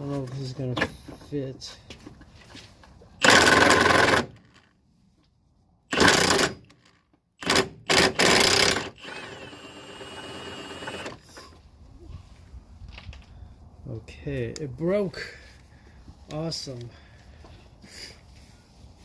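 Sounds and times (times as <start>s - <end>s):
wrench whirring with whine: 3.2s - 4.5s, 5.9s - 11.5s.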